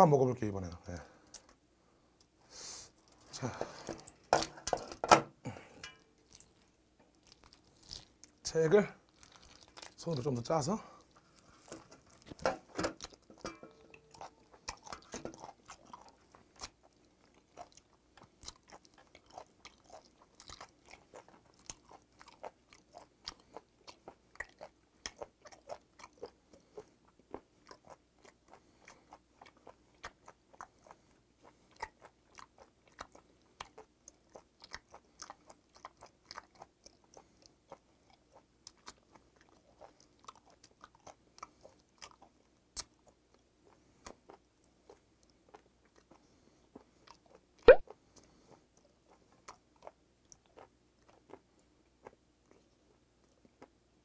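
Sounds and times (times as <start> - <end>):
wet mouth chewing clicks: 47.1 - 47.9.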